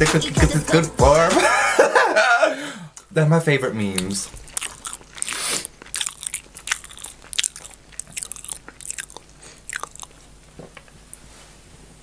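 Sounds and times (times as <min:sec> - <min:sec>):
crisp chewing crunches: 0:03.8 - 0:11.2.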